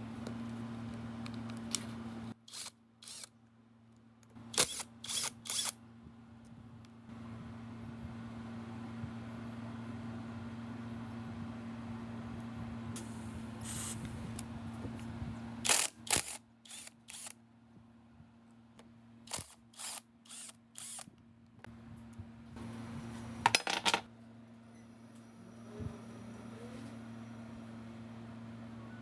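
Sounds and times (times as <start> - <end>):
steady low hum: 0.0 - 29.0
metal parts and tools clinking: 23.5 - 24.1.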